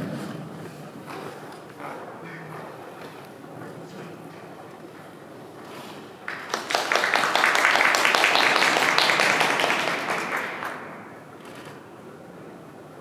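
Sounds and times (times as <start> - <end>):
audience applauding: 6.2 - 11.3.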